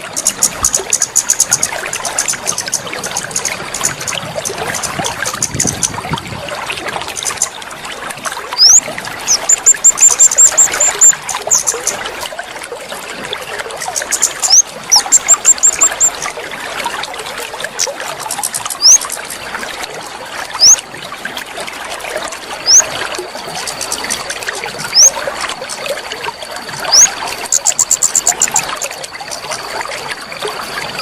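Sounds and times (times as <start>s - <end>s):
water trickling and splashing: 0.0s - 31.0s
small bird chirping: 8.6s - 11.9s, 13.9s - 16.2s, 18.3s - 19.1s, 20.6s - 20.8s, 22.7s - 22.9s, 24.9s - 25.2s, 26.9s - 29.0s.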